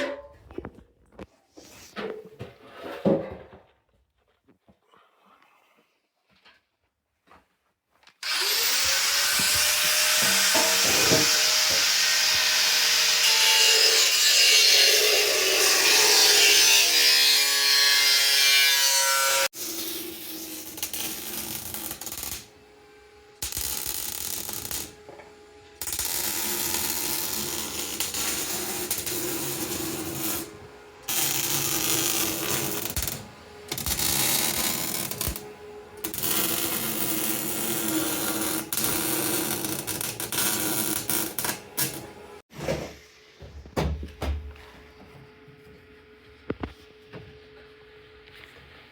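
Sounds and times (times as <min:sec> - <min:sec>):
power tool on steel bodywork: 0:08.2 - 0:42.4.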